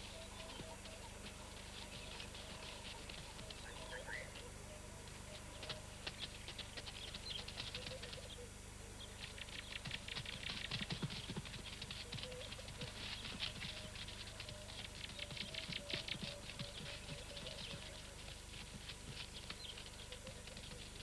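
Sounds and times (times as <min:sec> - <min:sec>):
running feet on dry ground: 0:09.5 - 0:21.0.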